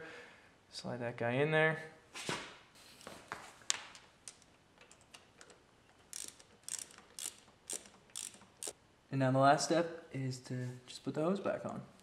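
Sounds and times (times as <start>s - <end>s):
socket ratchet clicking: 6.1s - 8.8s.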